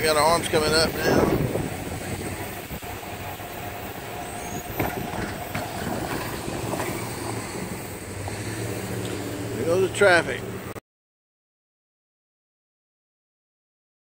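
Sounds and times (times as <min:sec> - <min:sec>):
freight train rumbling: 0:00.0 - 0:10.8.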